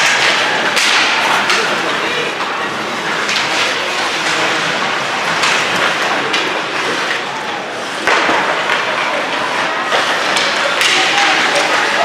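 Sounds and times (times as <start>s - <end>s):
puck and sticks knocking: 0.0s - 1.8s, 8.0s - 12.0s
crowd and skating noise: 0.0s - 12.0s.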